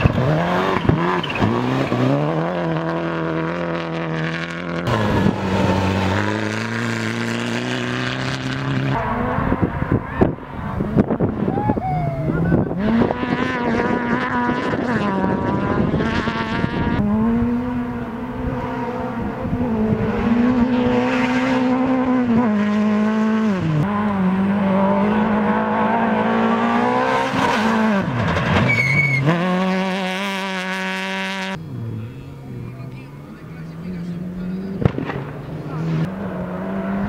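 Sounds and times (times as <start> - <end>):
tire squeal: 0.0 - 2.2, 25.2 - 30.1
rally car engine revving: 0.0 - 37.0.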